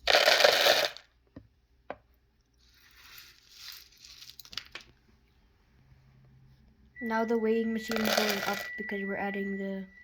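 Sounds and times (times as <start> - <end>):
rustle and patter of seeds: 2.6 - 4.8.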